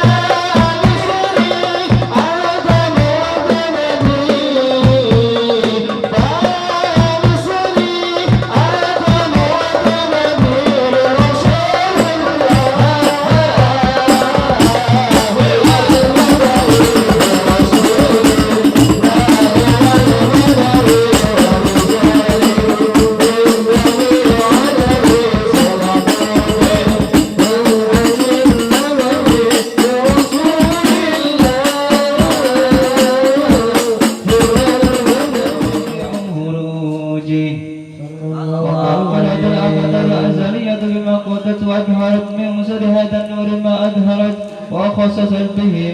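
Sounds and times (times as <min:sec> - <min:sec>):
fast hand drum strokes: 0:00.0 - 0:36.4
chanted recitation: 0:00.0 - 0:45.9
voices singing devotional song: 0:00.0 - 0:45.9.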